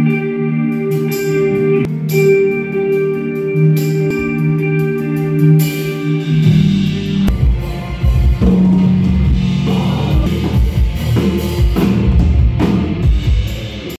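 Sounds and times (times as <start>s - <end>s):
rock music guitar: 0.0s - 13.9s
heavy drum hits: 6.5s - 13.8s.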